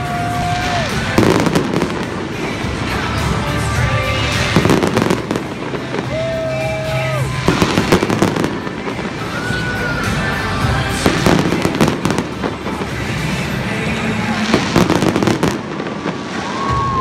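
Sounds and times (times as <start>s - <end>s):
fireworks bangs and pops: 0.0s - 17.0s
music with long held notes: 0.0s - 17.0s.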